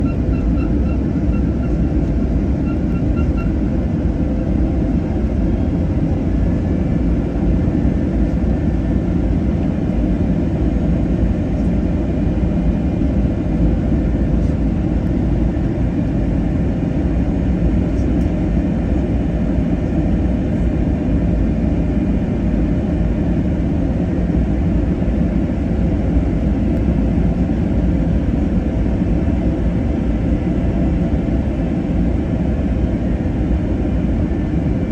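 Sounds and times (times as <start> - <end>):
airliner cabin rumble: 0.0 - 34.9
faint short beeps: 2.6 - 3.6.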